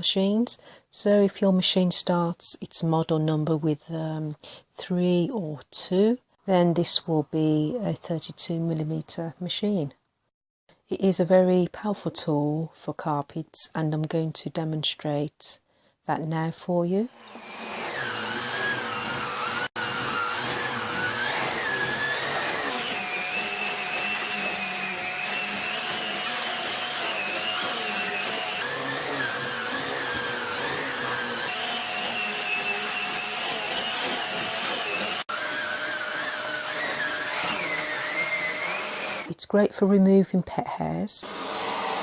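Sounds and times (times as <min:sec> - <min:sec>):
vacuum cleaner on carpet: 0:17.3 - 0:39.3, 0:41.3 - 0:42.0.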